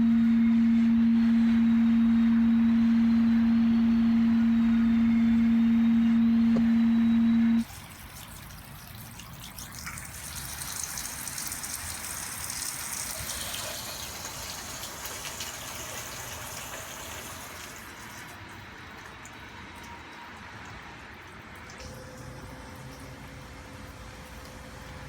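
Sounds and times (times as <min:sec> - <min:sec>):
water gushing: 0:07.6 - 0:18.4.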